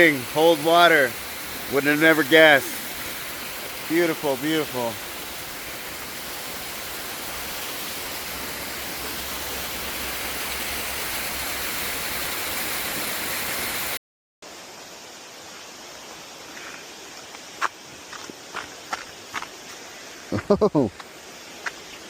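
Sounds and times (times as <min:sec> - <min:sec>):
soft steady hiss: 0:00.0 - 0:13.0, 0:14.4 - 0:22.0
waterfall rushing: 0:00.0 - 0:14.0.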